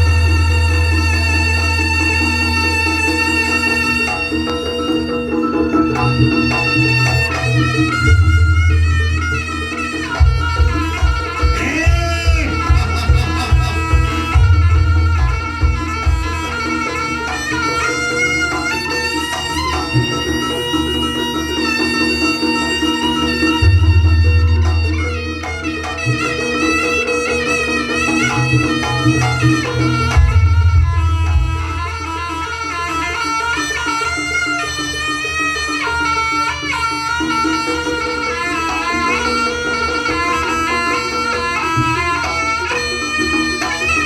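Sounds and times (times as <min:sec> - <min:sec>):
reedy wind instrument melody: 0:00.0 - 0:44.0
drums and heavy low beat: 0:10.2 - 0:16.6, 0:30.1 - 0:32.1.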